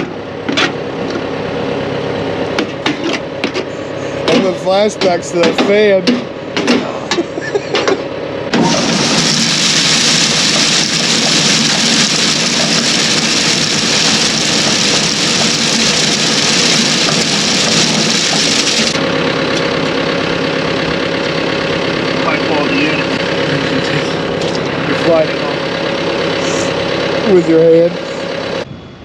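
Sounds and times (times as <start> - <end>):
engine running: 0.0 - 28.7
loud hissing rush: 8.6 - 19.0.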